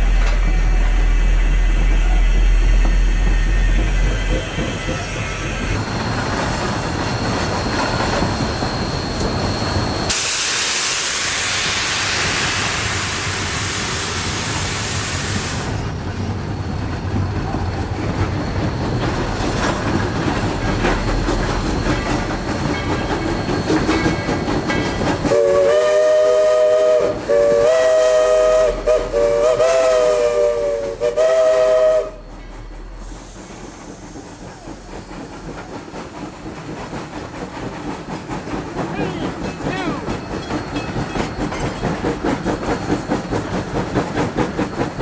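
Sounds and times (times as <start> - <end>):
steam hissing: 0.0 - 45.0
train rumbling and clicking: 0.0 - 45.0
steam whistle blasts: 25.2 - 32.3.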